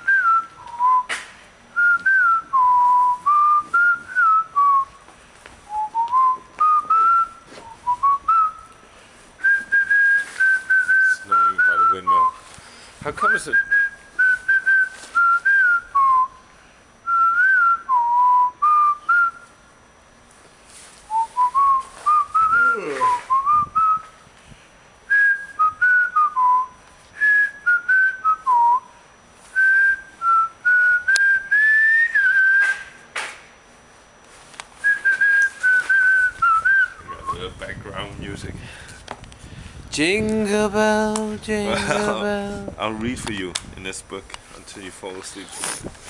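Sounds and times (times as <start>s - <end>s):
person whistling a tune: 0.0s - 1.2s, 1.8s - 5.0s, 5.7s - 8.7s, 9.4s - 12.4s, 13.3s - 16.4s, 17.1s - 19.5s, 21.1s - 24.1s, 25.1s - 28.9s, 29.5s - 33.0s, 34.8s - 37.5s.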